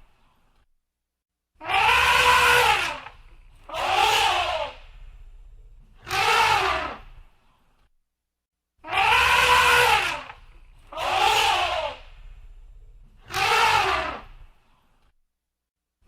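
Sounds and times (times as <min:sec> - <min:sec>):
elephant trumpeting: 0:01.6 - 0:07.0, 0:08.9 - 0:14.3.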